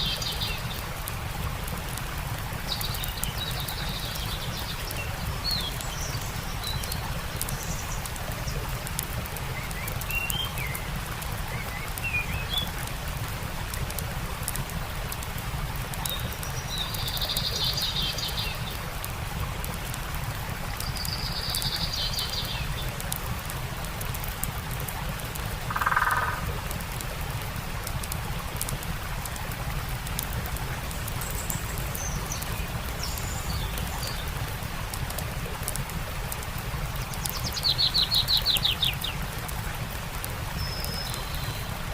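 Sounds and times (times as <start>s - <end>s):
campfire crackling: 0.0s - 41.9s
stream running: 0.0s - 41.9s
birds chirping: 25.7s - 26.6s.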